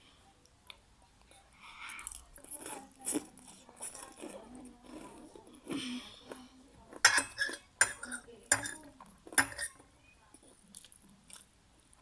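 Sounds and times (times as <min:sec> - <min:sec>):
person chewing food: 0:10.4 - 0:12.0.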